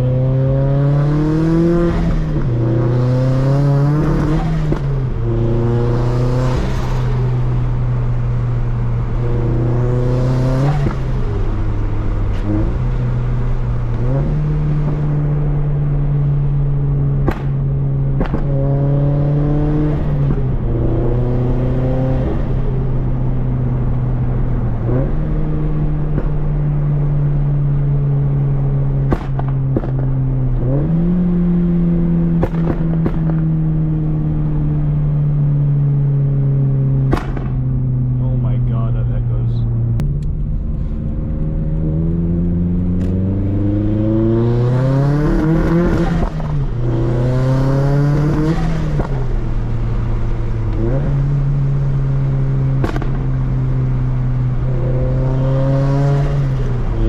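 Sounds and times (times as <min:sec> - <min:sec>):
car engine accelerating: 0:00.0 - 0:57.0
sharp exhaust pops: 0:17.2 - 0:18.5, 0:29.0 - 0:30.2, 0:32.4 - 0:33.4, 0:37.0 - 0:37.7, 0:52.8 - 0:53.3.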